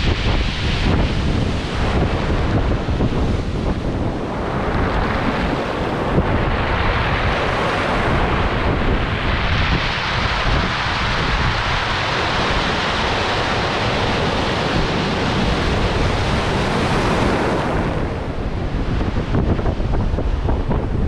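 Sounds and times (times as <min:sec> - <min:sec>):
strong wind buffeting microphone: 0:00.0 - 0:21.0.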